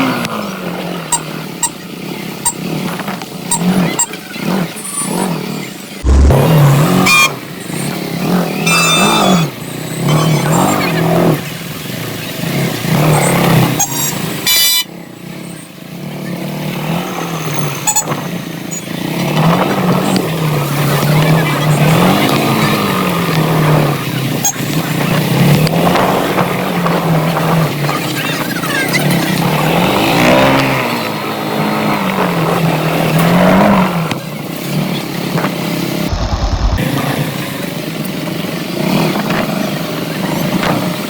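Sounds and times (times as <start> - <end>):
motorcycle engine revving: 0.0 - 14.4, 15.3 - 41.0
loud rushing noise: 6.0 - 7.0, 36.0 - 37.4.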